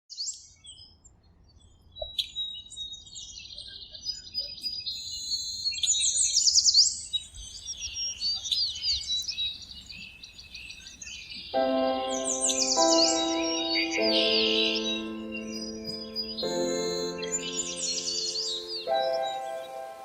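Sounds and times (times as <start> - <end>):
songbirds chirping and singing: 2.0 - 20.0.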